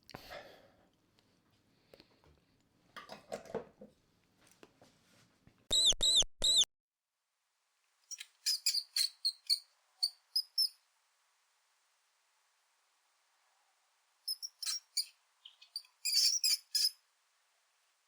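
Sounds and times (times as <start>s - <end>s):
mouse squeaks: 5.7s - 6.7s, 8.1s - 10.8s, 14.3s - 17.0s.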